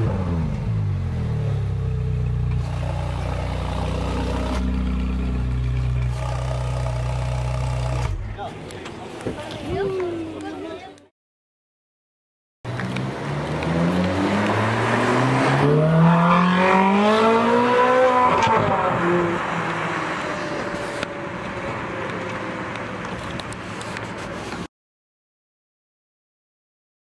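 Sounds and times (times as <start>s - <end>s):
car engine revving: 0.0s - 8.4s, 12.7s - 23.3s.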